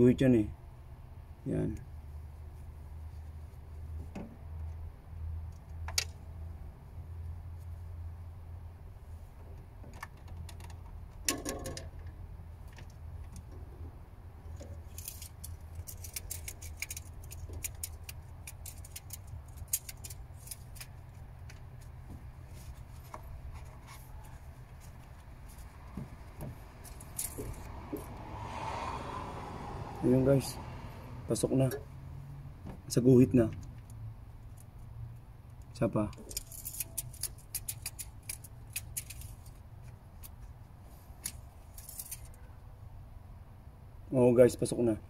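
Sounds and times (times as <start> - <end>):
metal parts clicking and rattling: 14.5 - 21.6, 26.8 - 27.7, 36.1 - 39.6, 41.2 - 42.4.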